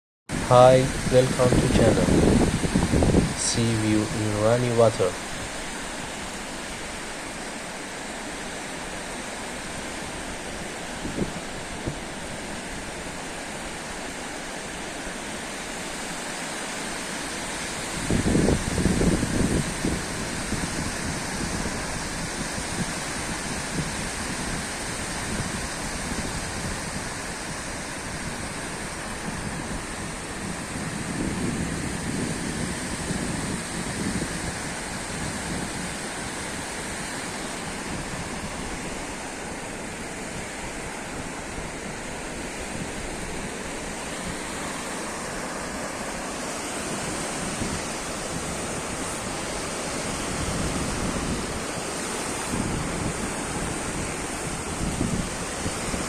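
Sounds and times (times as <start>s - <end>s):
sea waves washing in: 0.3s - 56.0s.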